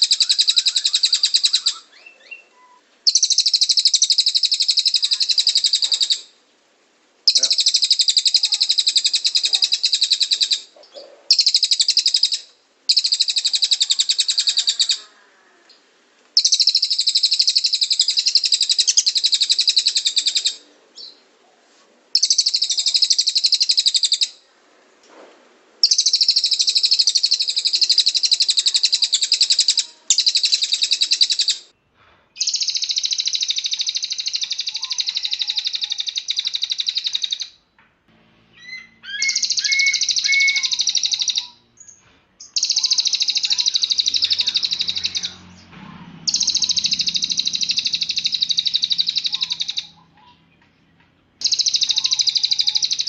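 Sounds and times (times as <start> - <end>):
bird trilling rapidly: 0.0 - 6.3, 7.2 - 15.1, 16.4 - 21.2, 22.1 - 24.5, 25.8 - 31.7, 32.4 - 37.6, 38.5 - 45.7, 46.3 - 50.4, 51.4 - 53.0.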